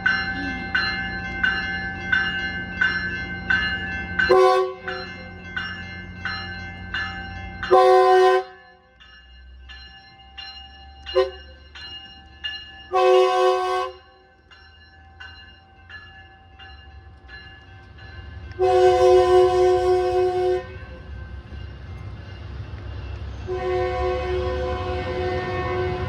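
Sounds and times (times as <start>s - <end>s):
bell ringing: 0.0s - 18.6s
low rumble of train: 0.0s - 26.0s
train horn blasts: 4.3s - 5.0s, 7.7s - 8.7s, 11.2s - 11.4s, 12.9s - 14.2s, 18.6s - 21.0s, 23.5s - 26.0s.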